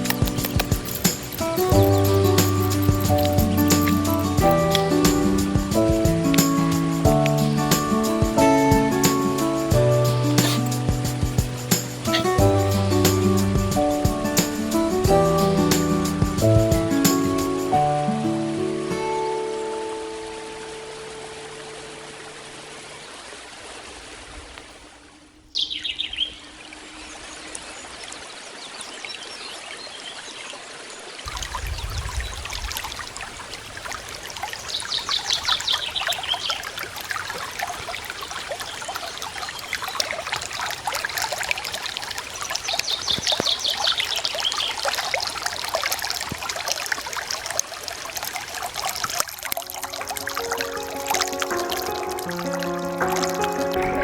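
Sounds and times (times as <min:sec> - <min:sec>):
river water babbling: 0:00.0 - 0:54.0
birds singing: 0:25.5 - 0:32.4, 0:34.4 - 0:36.8, 0:42.3 - 0:45.0.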